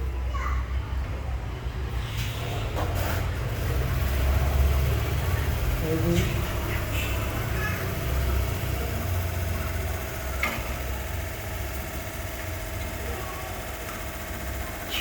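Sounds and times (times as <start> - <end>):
engine idling: 3.4 - 15.0.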